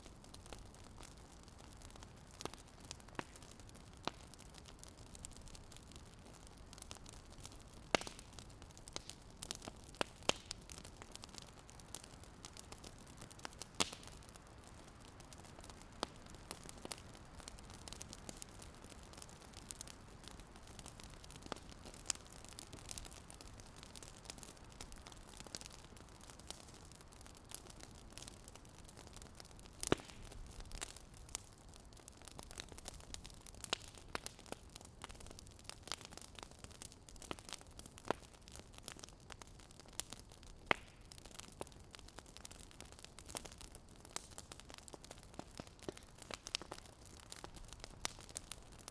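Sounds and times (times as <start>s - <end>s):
fire crackling: 0.0s - 48.9s.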